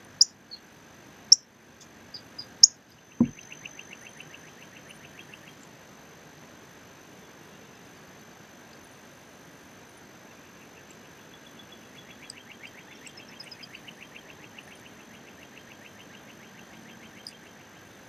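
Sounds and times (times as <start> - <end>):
songbird rapid trill: 2.1 - 5.7, 10.6 - 18.0.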